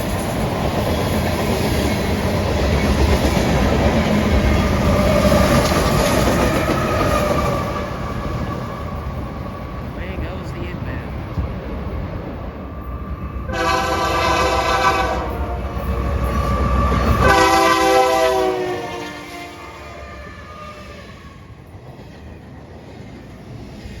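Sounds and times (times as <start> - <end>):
passing train rumble: 0.0 - 24.0
locomotive air horn blasts: 13.5 - 15.9, 16.6 - 21.2.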